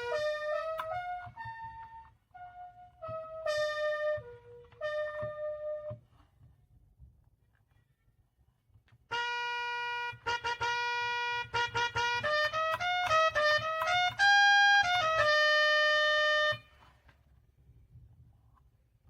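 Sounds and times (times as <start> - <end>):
keyboard playing simple melody: 0.0 - 6.2, 9.0 - 16.9.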